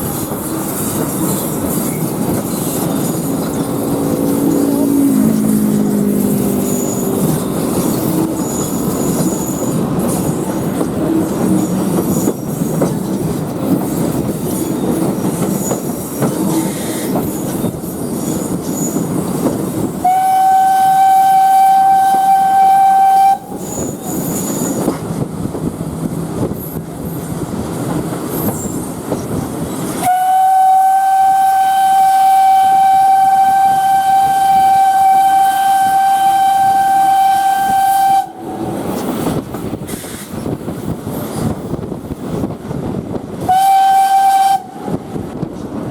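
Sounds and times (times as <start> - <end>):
train wheels rumbling on track: 0.0 - 45.9
steam locomotive whistle: 20.0 - 24.1, 30.0 - 39.0, 43.4 - 45.2.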